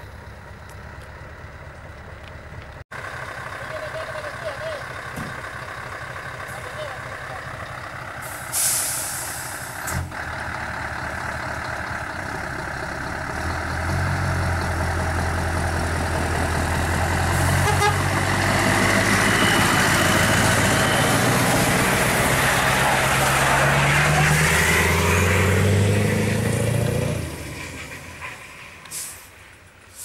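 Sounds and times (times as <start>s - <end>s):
heavy vehicle engine running: 0.0s - 30.0s
air hiss: 8.3s - 9.7s.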